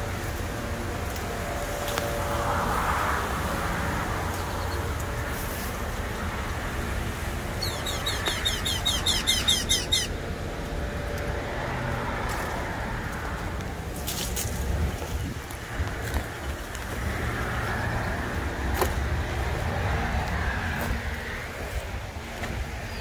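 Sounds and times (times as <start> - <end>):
road traffic rumble: 0.0 - 23.0
bird calling high notes: 7.6 - 10.2.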